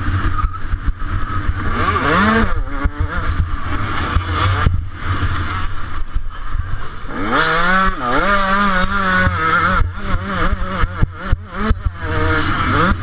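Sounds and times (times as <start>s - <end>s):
two-stroke engine revving: 0.0s - 13.0s.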